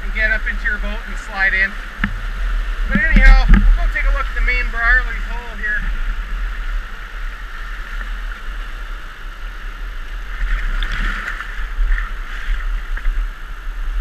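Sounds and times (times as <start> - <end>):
whitewater rushing: 0.0 - 8.9.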